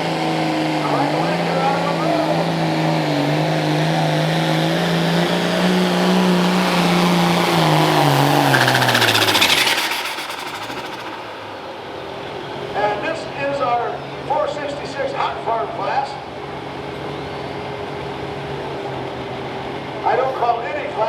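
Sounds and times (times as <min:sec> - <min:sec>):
tractor diesel engine revving: 0:00.0 - 0:12.9
turbo hiss: 0:08.5 - 0:12.3.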